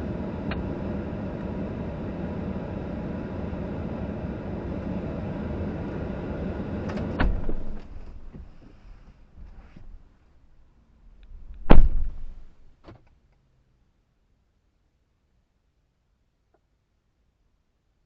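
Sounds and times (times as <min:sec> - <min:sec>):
vehicle rumbling: 0:00.0 - 0:10.2, 0:10.8 - 0:12.8
loud thump: 0:07.2 - 0:08.1, 0:11.6 - 0:12.5.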